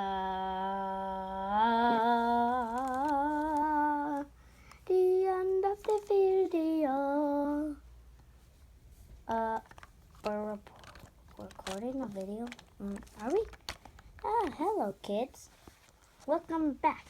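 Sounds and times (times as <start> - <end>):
child humming a wordless tune: 0.0 - 4.3.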